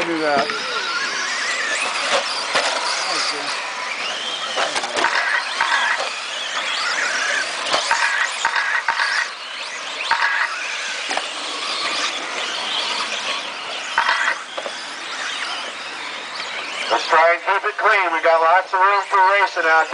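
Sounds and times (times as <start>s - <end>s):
rc truck motors whining: 0.0s - 19.9s.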